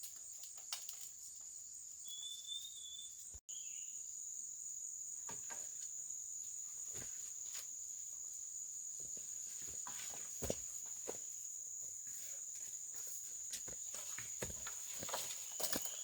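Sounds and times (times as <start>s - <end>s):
insects droning: 0.0s - 16.0s
soft footsteps: 9.0s - 11.4s, 12.0s - 16.0s.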